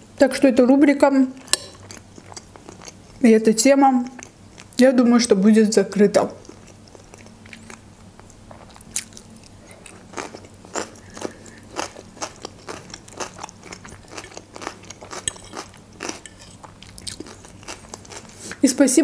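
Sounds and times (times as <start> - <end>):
person chewing crunchy cucumber: 1.4 - 3.2, 6.4 - 18.6.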